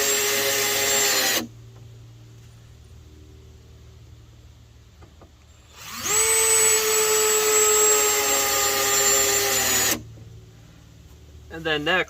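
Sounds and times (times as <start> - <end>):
power tool motor whining: 0.0 - 1.5, 5.6 - 10.1.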